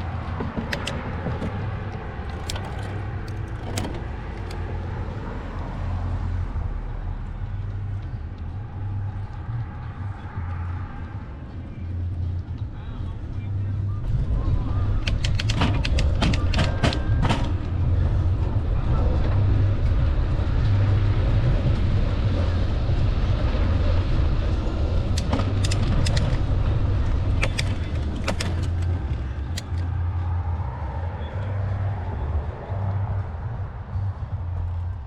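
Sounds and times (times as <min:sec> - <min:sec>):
bicycle clicks and rattles: 0:00.0 - 0:05.0, 0:15.0 - 0:17.6, 0:25.0 - 0:30.2
bicycle riding rumble: 0:00.0 - 0:35.0.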